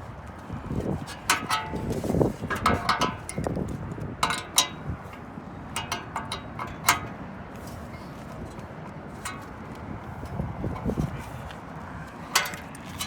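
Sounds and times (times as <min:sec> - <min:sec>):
metal tools clicking and clanking: 0:01.2 - 0:01.8, 0:04.2 - 0:05.2, 0:12.3 - 0:13.0.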